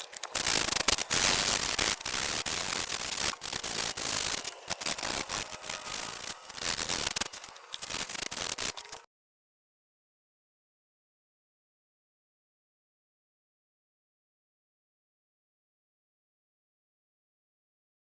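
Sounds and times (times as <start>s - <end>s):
rough rubbing or scrubbing: 0.0s - 9.0s.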